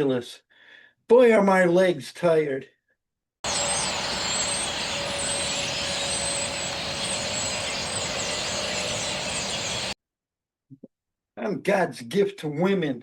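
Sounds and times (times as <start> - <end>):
small birds chirping: 3.5 - 10.0
steady hiss: 3.5 - 10.0.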